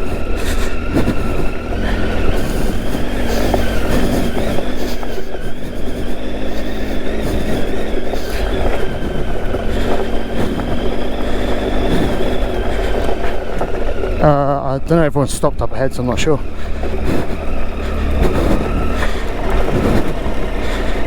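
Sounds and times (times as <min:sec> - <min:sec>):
motorcycle engine running: 0:00.0 - 0:21.0
rush of ride noise: 0:00.0 - 0:21.0.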